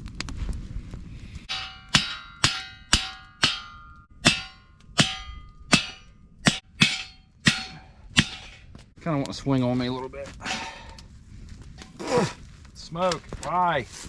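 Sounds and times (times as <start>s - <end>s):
hammer blows on metal post: 1.5s - 8.6s.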